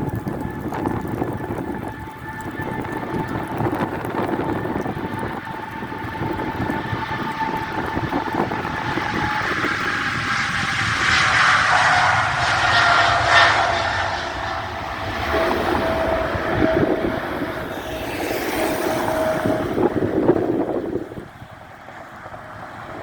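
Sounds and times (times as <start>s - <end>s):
jet engines whining: 0.2s - 23.0s
rushing noise: 0.9s - 22.6s.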